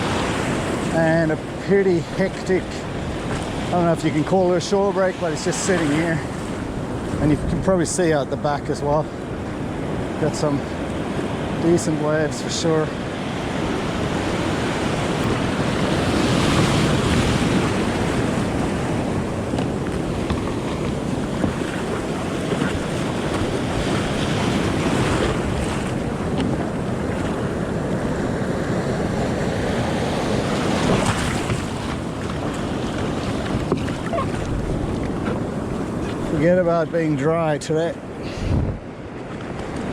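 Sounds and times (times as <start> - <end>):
wind buffeting microphone: 0.0 - 37.2, 37.8 - 39.9
surf crashing on beach: 0.0 - 39.9.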